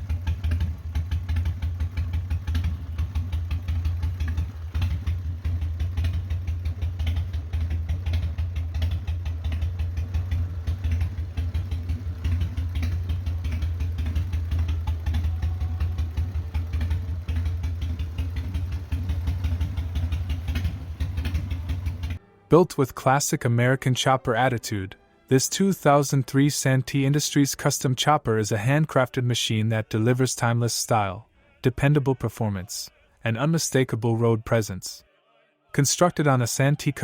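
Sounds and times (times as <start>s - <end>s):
motorcycle engine idling: 0.0s - 22.2s.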